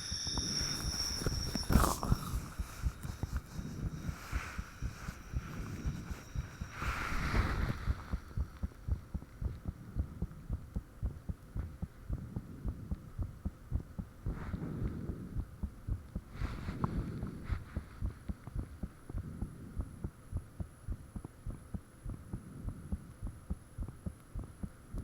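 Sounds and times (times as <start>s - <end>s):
soft rushing noise: 0.0s - 9.4s
heartbeat thumps: 0.6s - 25.0s.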